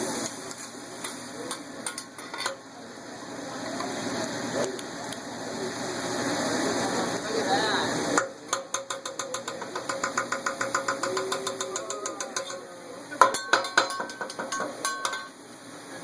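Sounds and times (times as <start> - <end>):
spatula and knife clattering on griddle: 1.0 - 2.7, 8.2 - 15.4
ringing metal clangs: 13.2 - 15.4.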